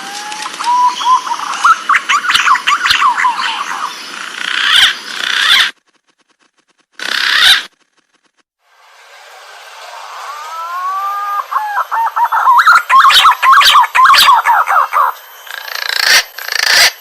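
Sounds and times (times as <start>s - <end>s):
pigeon calling whistled notes: 10.5s - 15.2s.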